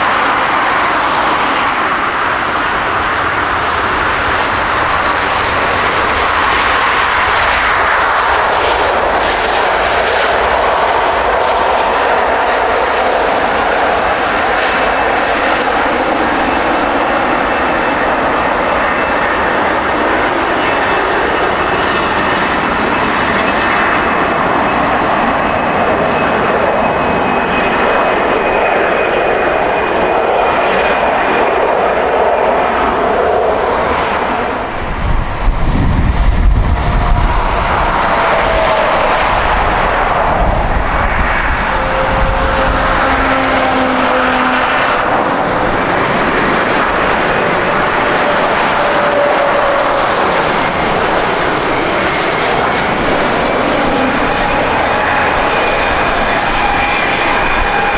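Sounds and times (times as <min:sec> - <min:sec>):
jet engines roaring: 0:00.0 - 0:57.9
high whine dropping in pitch: 0:10.2 - 0:17.0, 0:29.6 - 0:54.5
deep rumble: 0:30.0 - 0:51.7.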